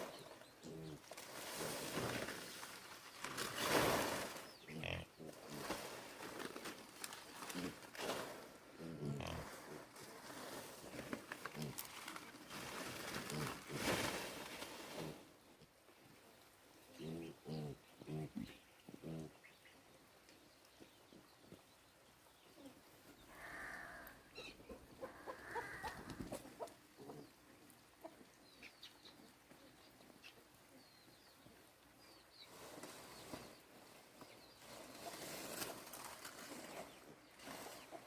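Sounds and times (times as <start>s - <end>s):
faint rustling: 0.0s - 15.6s, 32.4s - 38.0s.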